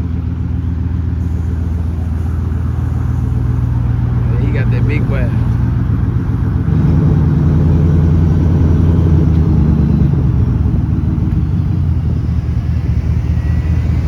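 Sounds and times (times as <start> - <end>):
loud engine exhaust rumble: 0.0 - 14.0.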